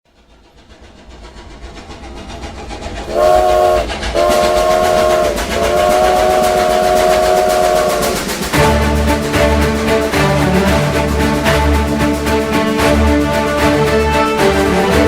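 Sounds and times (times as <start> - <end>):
train rumbling: 0.1 - 15.0
chord train whistle blasts: 3.1 - 9.2.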